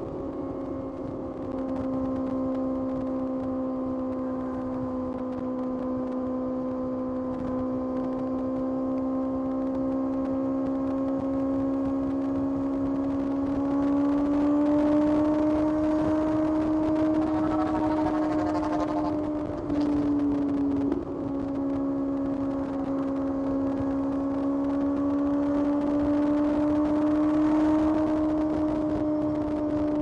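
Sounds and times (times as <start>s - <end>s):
motorcycle engine cruising: 0.0s - 30.0s.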